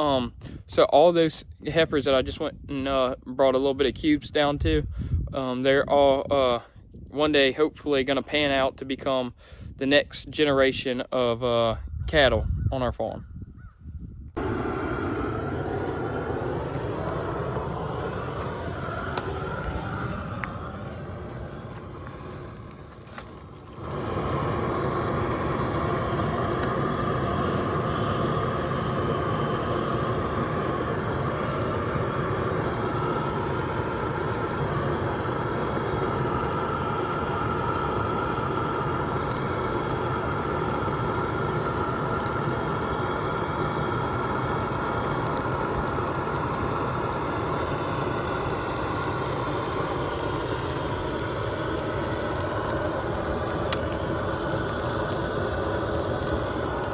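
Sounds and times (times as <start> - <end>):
excavator engine running: 14.4 - 56.9.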